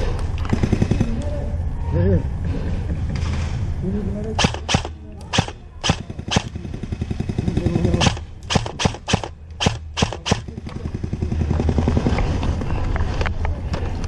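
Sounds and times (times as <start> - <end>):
airsoft gun shots: 4.4 - 6.6, 7.9 - 10.5.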